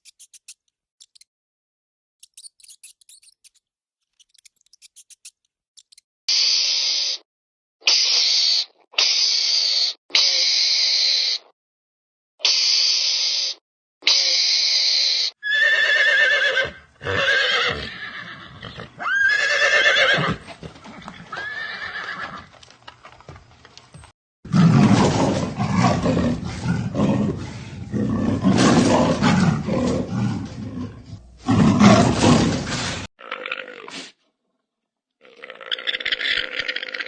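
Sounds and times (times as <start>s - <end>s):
horse whinnying: 15.4s - 22.5s
rough rumbling animal sound: 24.5s - 33.1s.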